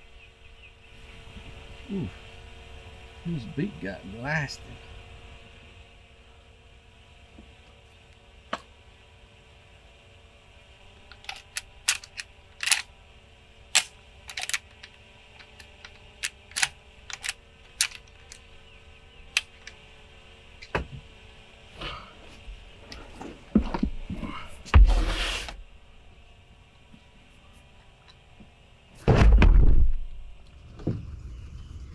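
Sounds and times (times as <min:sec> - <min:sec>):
faint steady hum: 0:00.0 - 0:31.9
sharp short clicks: 0:11.1 - 0:12.9, 0:13.8 - 0:18.4, 0:19.4 - 0:19.8.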